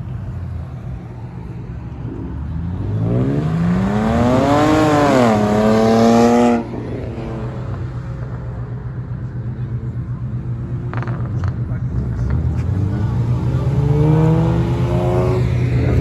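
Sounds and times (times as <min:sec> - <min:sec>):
car engine revving: 0:00.0 - 0:16.0
low engine rumble: 0:00.0 - 0:16.0.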